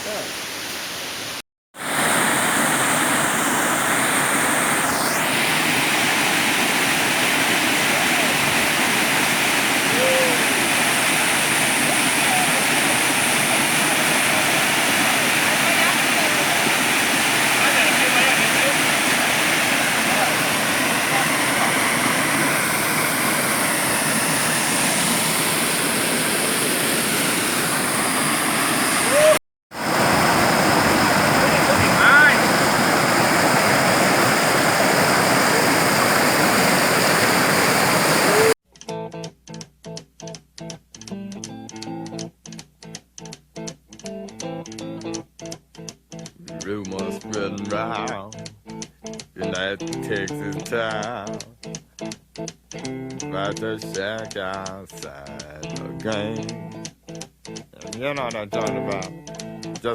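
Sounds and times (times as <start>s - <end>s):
waterfall rushing: 0.0s - 38.6s.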